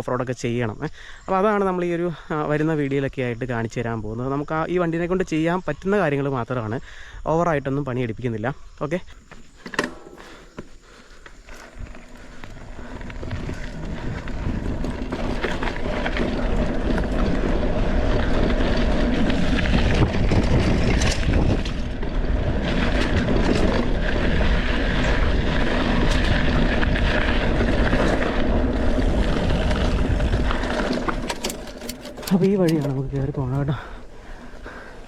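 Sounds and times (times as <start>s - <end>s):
mountain bike rattling on rough trail: 9.2s - 35.0s
wind rushing over microphone: 11.7s - 33.7s.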